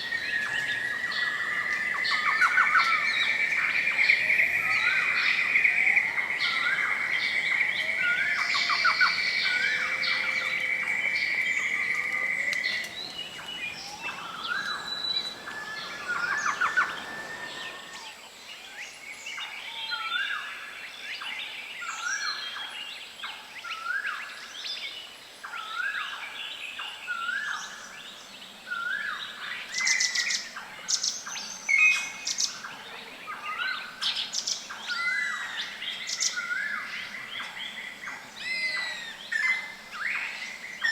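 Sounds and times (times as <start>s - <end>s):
birds calling and chirping: 0.0s - 18.2s, 28.7s - 40.9s
bird whistled note: 0.4s - 18.1s.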